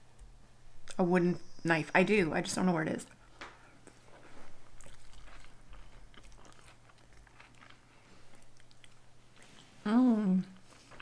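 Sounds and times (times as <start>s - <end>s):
person chewing soft food: 3.8s - 9.8s.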